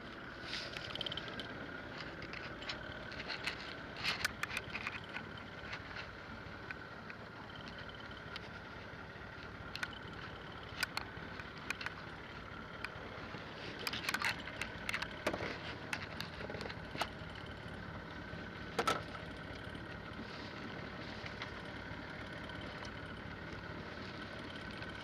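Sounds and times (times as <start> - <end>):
boat engine running: 0.0 - 25.0
sharp clicks and knocks: 0.8 - 8.6, 9.4 - 13.0, 13.7 - 17.5, 18.7 - 19.3.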